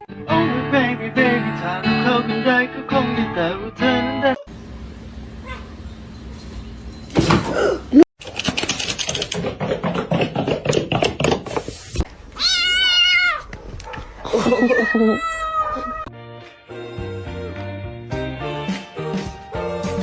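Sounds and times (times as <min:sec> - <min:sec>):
rapid clicking and rustling: 0:08.2 - 0:11.7
cat meowing: 0:12.4 - 0:13.5.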